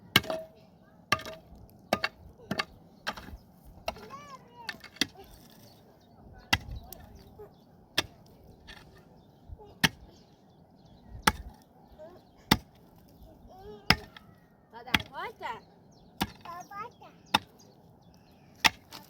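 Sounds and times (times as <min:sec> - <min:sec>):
wood being chopped: 0:01.1 - 0:05.5, 0:11.2 - 0:11.6, 0:13.9 - 0:14.3, 0:16.2 - 0:16.5, 0:18.6 - 0:19.0.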